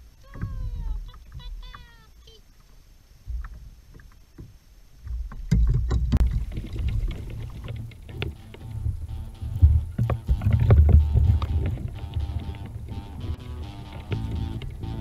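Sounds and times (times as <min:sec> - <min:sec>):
water knocking on plastic hull: 0:03.3 - 0:13.1
low rumble: 0:06.2 - 0:15.0.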